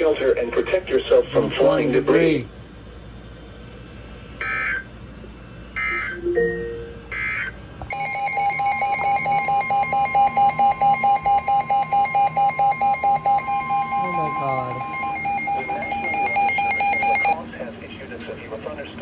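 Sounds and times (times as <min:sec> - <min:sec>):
pulsing alarm beeps: 0:04.4 - 0:04.9, 0:05.7 - 0:17.4
warbling digital data tones: 0:05.8 - 0:17.4.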